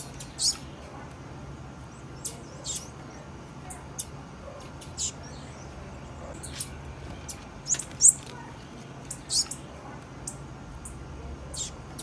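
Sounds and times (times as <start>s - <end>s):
bird chip calls: 0.0s - 0.9s, 2.2s - 8.3s, 9.1s - 11.8s.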